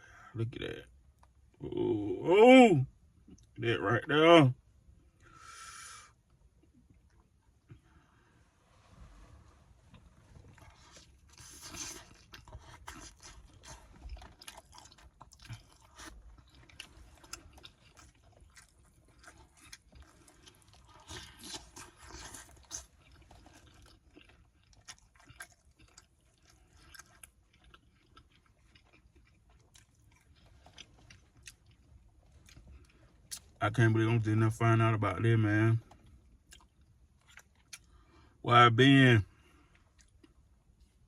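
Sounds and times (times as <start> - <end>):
close-miked chewing: 9.9 - 33.6, 35.8 - 38.2, 39.4 - 41.0.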